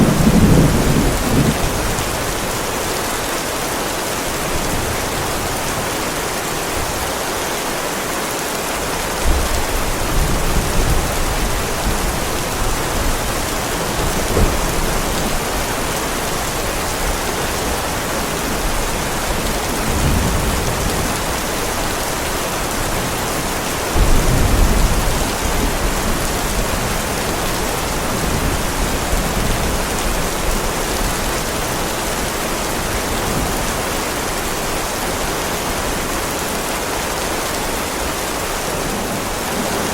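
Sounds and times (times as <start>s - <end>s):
low thunder rumbles: 0.0s - 2.7s, 9.2s - 34.5s
heavy rain on pavement: 0.0s - 39.9s.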